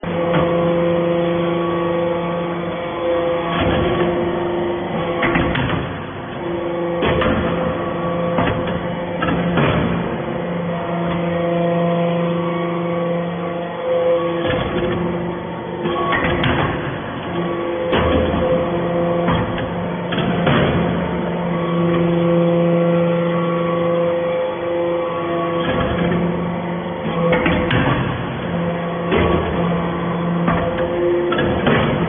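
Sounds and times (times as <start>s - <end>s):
baler machine hum: 0.0s - 32.0s
sharp metal clanks and knocks: 4.9s - 15.2s, 15.8s - 24.0s, 27.0s - 32.0s.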